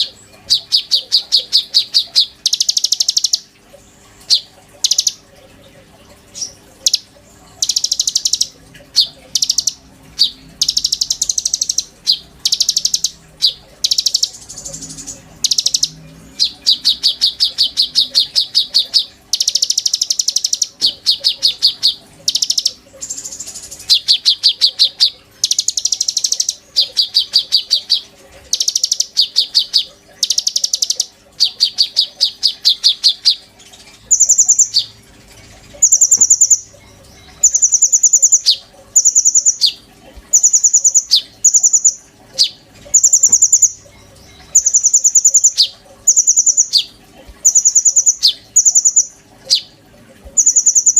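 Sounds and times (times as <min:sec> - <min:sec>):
songbird trilling: 0:00.0 - 0:03.5, 0:04.3 - 0:05.2, 0:07.6 - 0:33.4, 0:34.1 - 0:34.9, 0:35.8 - 0:49.7, 0:50.4 - 0:50.9.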